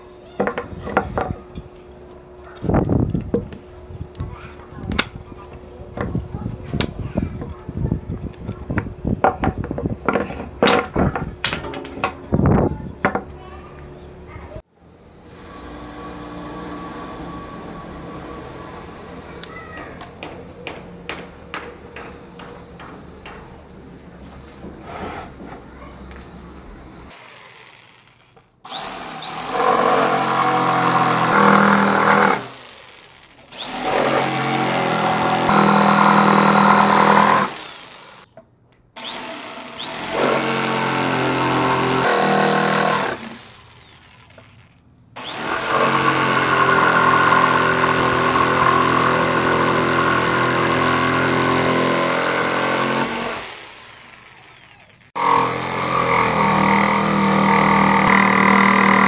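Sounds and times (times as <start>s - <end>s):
power tool cutting wood: 15.2s - 19.2s, 27.1s - 38.3s, 39.0s - 59.0s.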